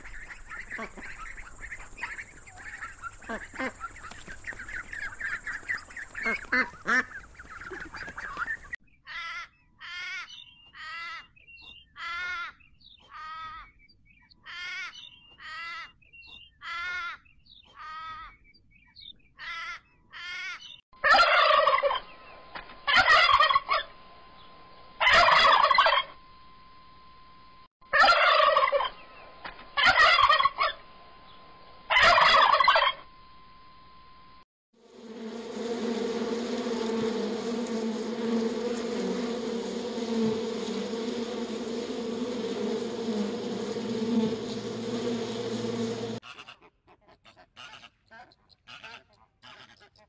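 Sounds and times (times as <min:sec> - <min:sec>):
turkeys gobbling: 0:00.0 - 0:08.8, 0:21.0 - 0:22.1, 0:22.9 - 0:23.9, 0:25.0 - 0:26.2, 0:27.9 - 0:30.8, 0:31.9 - 0:33.0
duckling peeping: 0:00.0 - 0:22.1.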